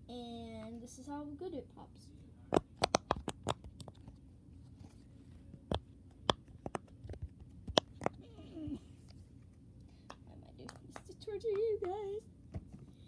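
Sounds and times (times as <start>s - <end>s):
fidget toy bubbles popping: 2.5s - 3.9s.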